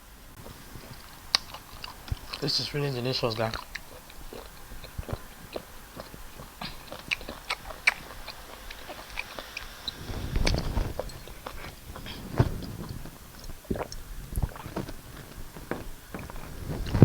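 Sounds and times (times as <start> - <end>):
wet chewing and lip smacking: 0.3 - 17.0
mouth clicks: 0.4 - 17.0
low thumps: 9.9 - 17.0.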